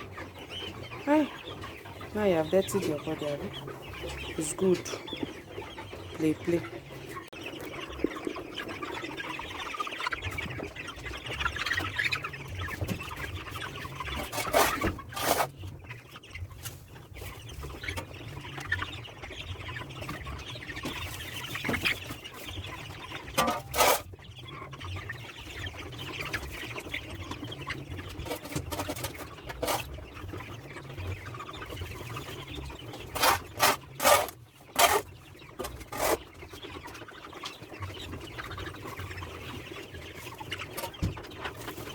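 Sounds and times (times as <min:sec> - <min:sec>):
chickens clucking: 0:00.0 - 0:41.9.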